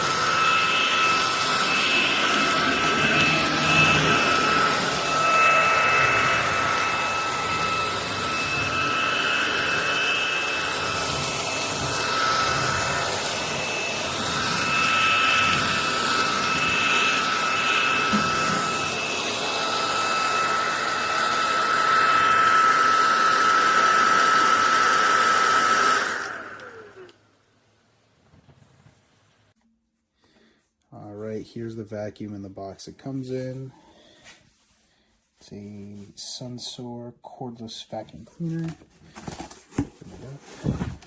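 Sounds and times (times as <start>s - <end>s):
vacuum winding down: 0.0s - 27.2s
vacuum cleaner motor whine: 0.0s - 27.3s.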